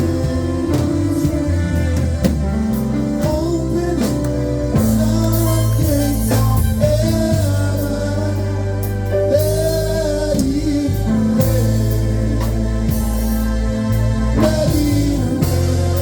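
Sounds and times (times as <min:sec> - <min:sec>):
gospel band playing: 0:00.0 - 0:16.0
person singing: 0:00.0 - 0:16.0.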